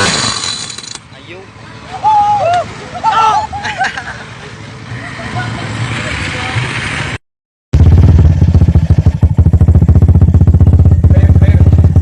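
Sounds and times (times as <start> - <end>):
motorcycle engine running: 7.8 - 12.0.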